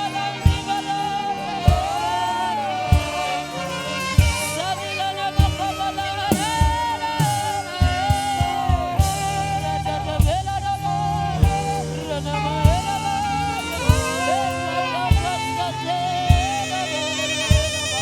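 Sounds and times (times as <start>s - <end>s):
bass: 0.0s - 18.0s
saxophone melody: 0.0s - 18.0s
drum beat: 0.3s - 2.3s, 2.9s - 4.7s, 5.3s - 10.8s, 11.4s - 12.0s, 12.6s - 15.6s, 16.2s - 16.8s, 17.5s - 18.0s.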